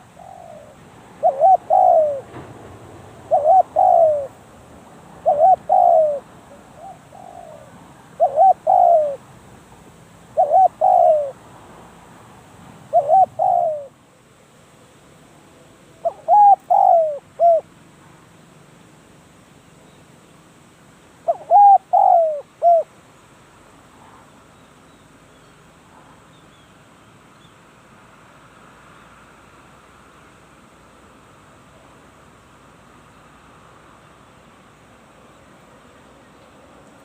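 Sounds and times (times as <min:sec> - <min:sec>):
dove cooing: 0:00.0 - 0:02.4, 0:03.2 - 0:04.4, 0:05.2 - 0:09.3, 0:10.3 - 0:11.4, 0:12.9 - 0:14.0, 0:16.0 - 0:17.7, 0:21.2 - 0:22.9.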